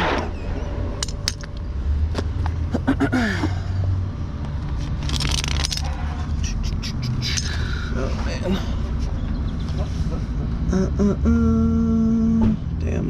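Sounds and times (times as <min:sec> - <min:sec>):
truck engine rumbling: 0:00.0 - 0:13.0
chains and hooks clattering: 0:01.0 - 0:01.6, 0:04.8 - 0:06.5, 0:07.2 - 0:07.7.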